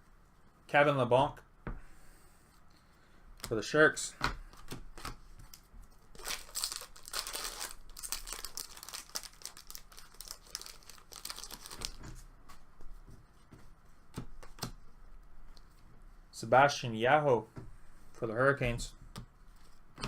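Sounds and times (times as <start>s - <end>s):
wrappers crinkling and tearing: 6.1s - 12.0s.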